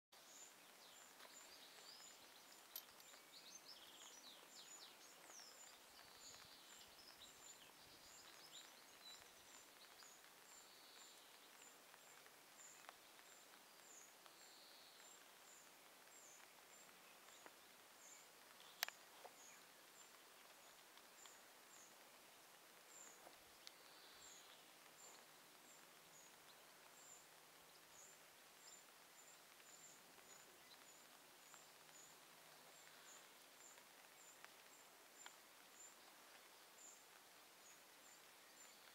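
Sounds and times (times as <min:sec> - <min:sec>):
small birds chirping: 0:00.1 - 0:38.9.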